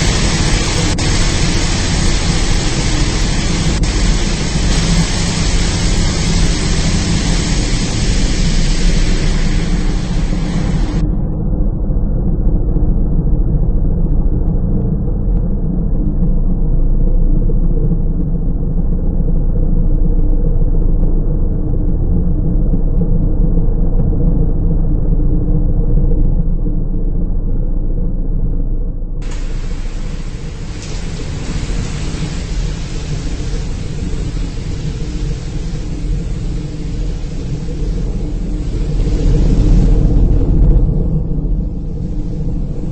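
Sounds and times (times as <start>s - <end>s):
car wash machinery rumble: 0.0s - 11.1s, 29.2s - 42.9s
steady hums: 0.0s - 42.9s.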